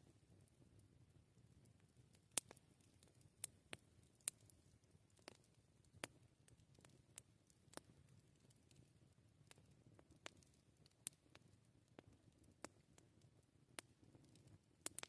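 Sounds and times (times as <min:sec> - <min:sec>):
faint low background: 0:00.0 - 0:15.0
campfire pops and snaps: 0:02.2 - 0:04.5, 0:05.1 - 0:08.8, 0:09.4 - 0:13.2, 0:13.8 - 0:15.0.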